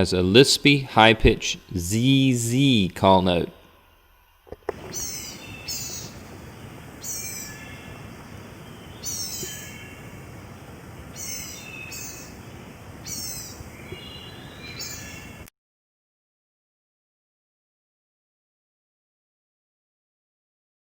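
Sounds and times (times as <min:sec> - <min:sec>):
bird giving thin high calls: 0:04.7 - 0:15.5.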